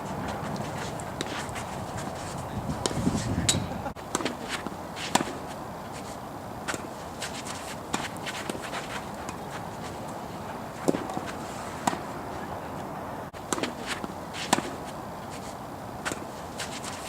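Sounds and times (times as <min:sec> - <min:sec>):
wind noise: 0:00.0 - 0:04.0
tennis ball strikes and bounces: 0:00.4 - 0:02.2, 0:02.8 - 0:05.6, 0:06.6 - 0:09.6, 0:10.7 - 0:12.5, 0:13.4 - 0:17.0.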